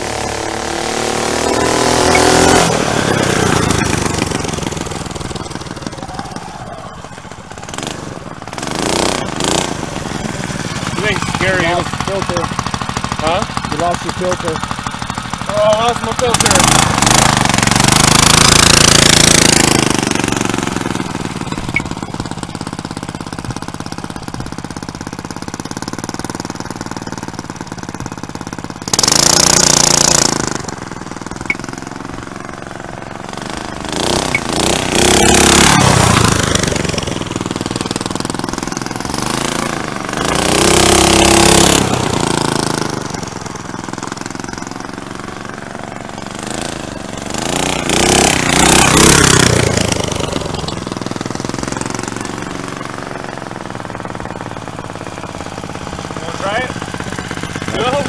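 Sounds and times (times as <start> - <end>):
engine revving: 0.0 - 58.0.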